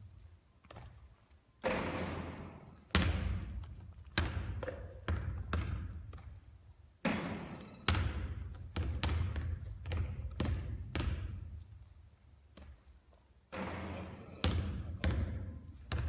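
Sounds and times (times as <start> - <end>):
basketball bouncing on hard floor: 1.6 - 6.4, 7.0 - 11.5, 13.5 - 16.0.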